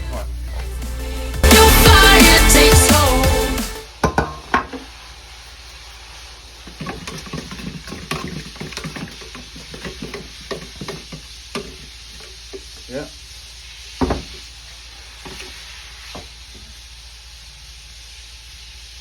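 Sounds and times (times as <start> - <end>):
background music: 0.0 - 3.9.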